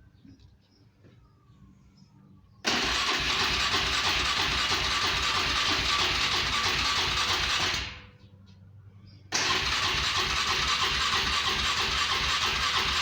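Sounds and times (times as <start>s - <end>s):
engine cranking on starter: 2.6s - 8.1s, 9.3s - 13.0s.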